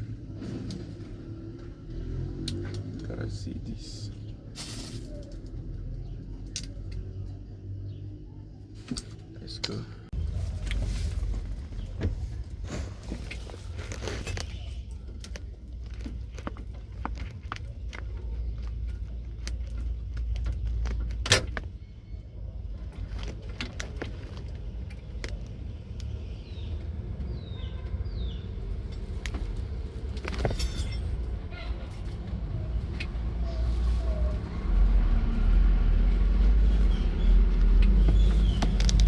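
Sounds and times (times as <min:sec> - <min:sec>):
truck engine rumbling: 0:00.0 - 0:39.0
clicks and metallic rattles: 0:28.9 - 0:32.3.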